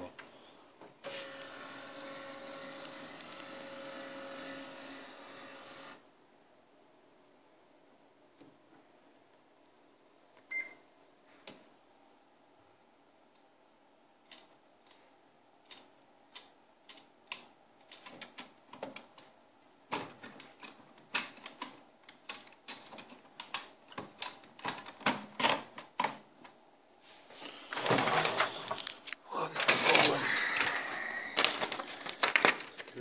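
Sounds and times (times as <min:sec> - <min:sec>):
paper rustling: 0:02.6 - 0:04.4, 0:27.2 - 0:33.0.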